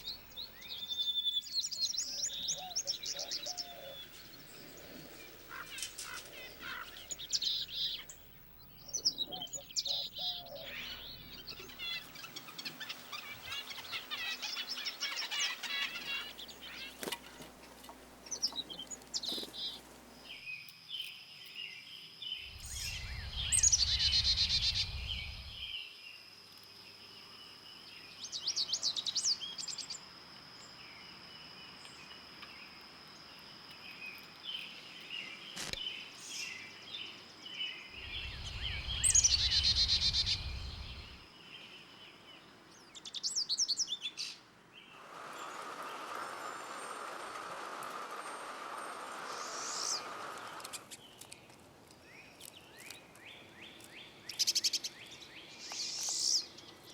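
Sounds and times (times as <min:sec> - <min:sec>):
songbirds chirping and trilling: 0:00.0 - 0:56.9
low rumble: 0:22.5 - 0:25.7, 0:38.0 - 0:41.2
faint high whine: 0:22.5 - 0:25.8, 0:37.9 - 0:41.3, 0:45.0 - 0:50.9.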